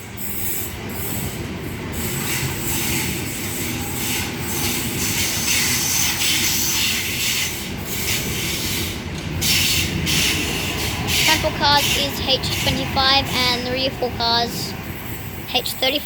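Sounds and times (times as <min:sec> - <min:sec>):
train wheels rolling on rails: 0:00.0 - 0:16.0.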